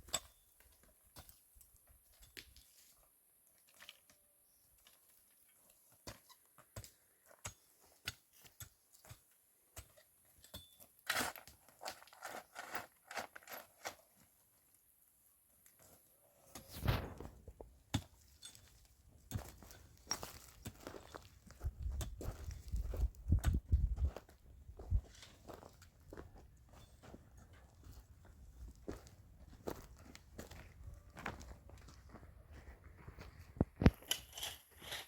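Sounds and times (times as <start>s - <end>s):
light clicks and crunches: 33.5s - 35.0s.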